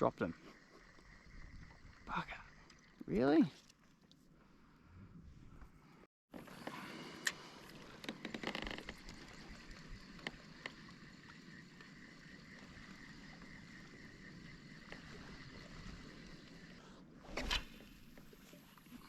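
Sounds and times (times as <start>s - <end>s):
water lapping around kayak: 6.3s - 19.0s.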